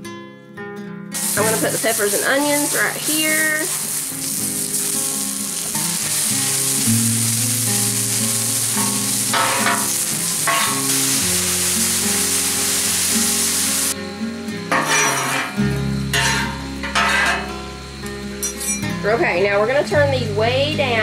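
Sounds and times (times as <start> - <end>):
scraping on griddle: 1.2 - 14.0, 14.7 - 17.5
vegetables sizzling on griddle: 1.2 - 14.0, 14.7 - 15.5, 16.1 - 17.4
background music: 1.2 - 14.8.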